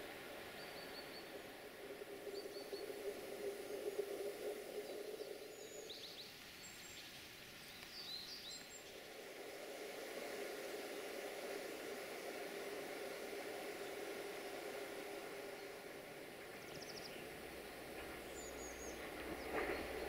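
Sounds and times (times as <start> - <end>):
low background rush: 0.0 - 20.0
small birds chirping: 0.4 - 9.2, 15.3 - 20.0.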